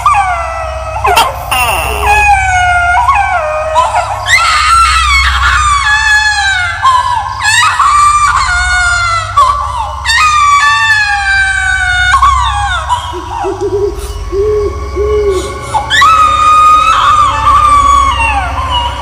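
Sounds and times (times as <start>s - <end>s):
eerie high-pitched wailing screams: 0.0s - 19.0s
low droning hum: 0.3s - 4.5s.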